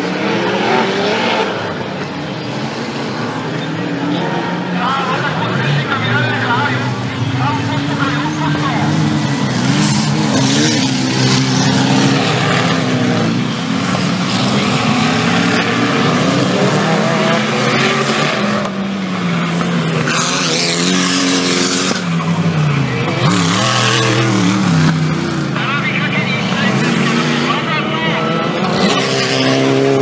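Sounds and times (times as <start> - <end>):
off-road engines revving: 0.0 - 30.0.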